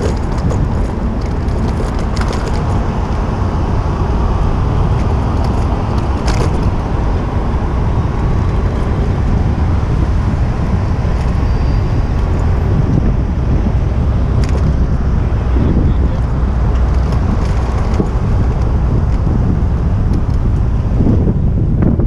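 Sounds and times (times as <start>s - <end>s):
city street traffic: 0.0s - 22.0s
wind rumble on microphone: 0.0s - 22.0s.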